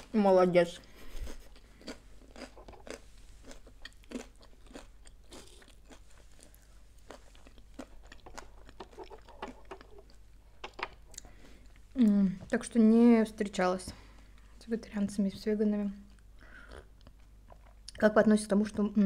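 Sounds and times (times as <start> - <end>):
person chewing food: 0.8 - 12.1, 16.0 - 18.0.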